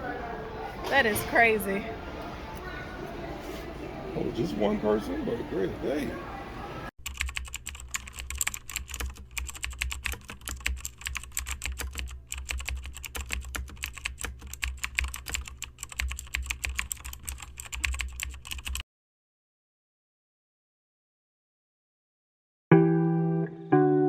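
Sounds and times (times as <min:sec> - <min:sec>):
rapid irregular clicking: 0:07.0 - 0:18.8.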